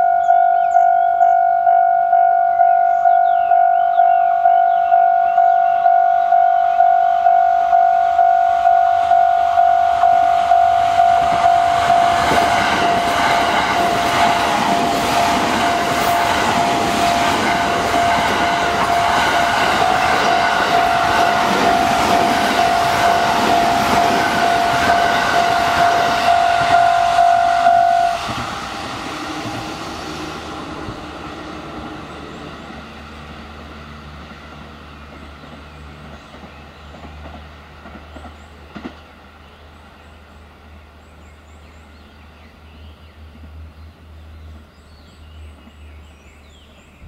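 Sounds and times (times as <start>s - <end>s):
level crossing warning bell: 0.0s - 32.3s
electric train running: 0.0s - 39.0s.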